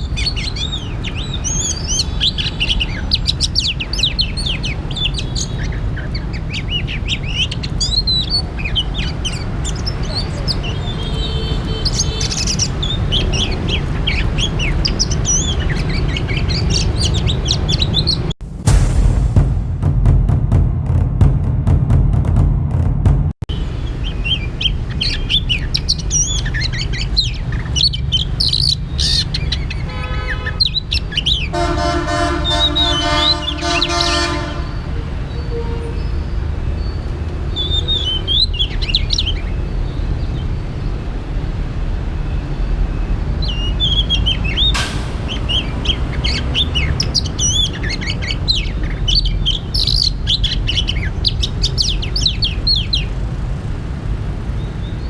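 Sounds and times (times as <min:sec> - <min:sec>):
bird singing whistled phrases: 0:00.0 - 0:18.3, 0:35.3 - 0:39.8, 0:42.3 - 0:53.1
steady low rumble: 0:18.4 - 0:23.4
horn sounding: 0:31.5 - 0:36.0.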